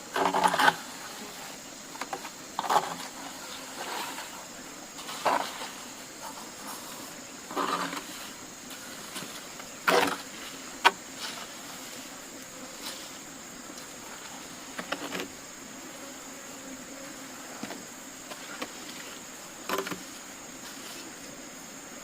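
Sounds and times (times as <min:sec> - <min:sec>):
high insect drone: 0:00.0 - 0:22.0
knocks and rustles from handwork: 0:19.7 - 0:20.1.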